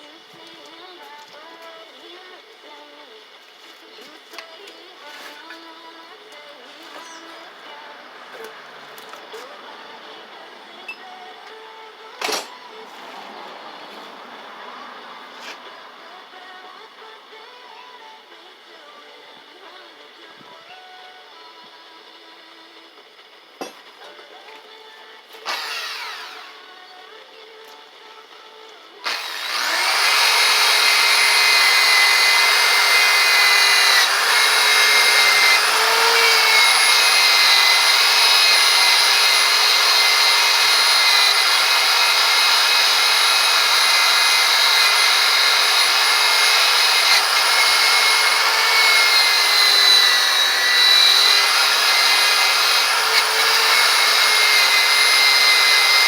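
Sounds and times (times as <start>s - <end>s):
buffing wheel whine: 29.1s - 56.0s.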